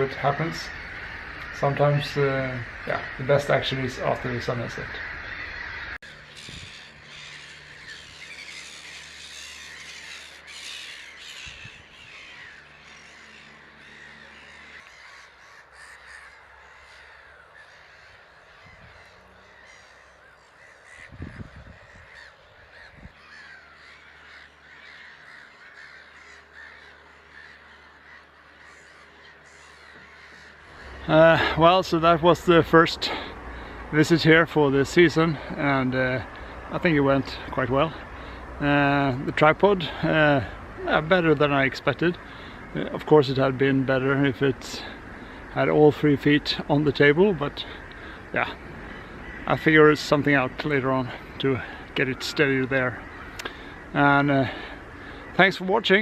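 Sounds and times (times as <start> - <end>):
chorus of birds calling: 0.0 - 56.0.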